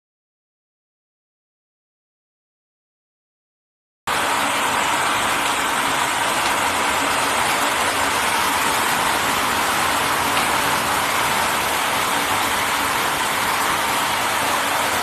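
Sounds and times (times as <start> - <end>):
shower head spraying water: 4.1 - 15.0.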